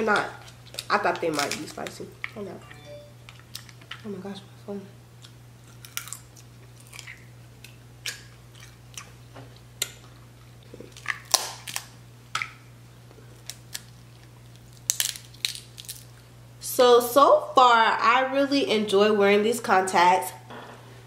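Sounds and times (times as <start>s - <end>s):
crab shells cracking: 0.2s - 2.4s, 5.2s - 9.1s, 10.9s - 12.6s, 13.4s - 16.2s
close chewing: 5.2s - 9.2s.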